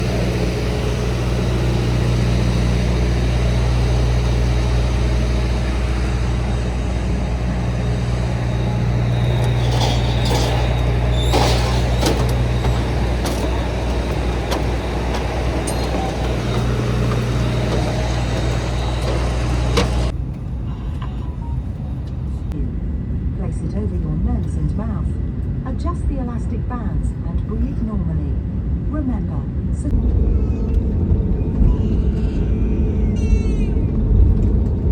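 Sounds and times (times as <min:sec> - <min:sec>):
low engine drone: 0:00.0 - 0:34.9.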